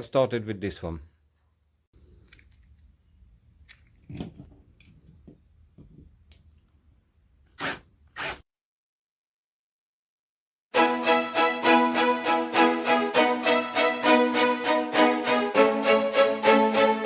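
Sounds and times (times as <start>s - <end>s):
short hissing bursts: 7.6s - 8.4s.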